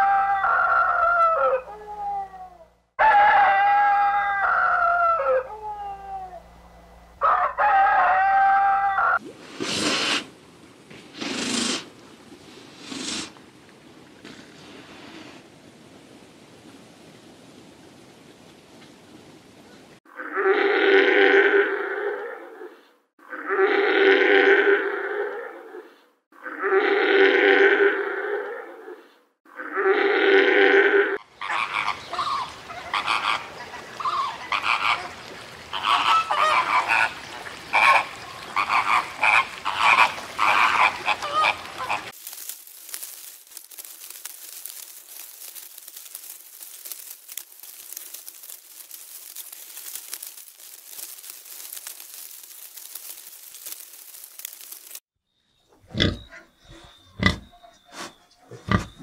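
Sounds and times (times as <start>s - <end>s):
pigs grunting: 55.8s - 59.0s.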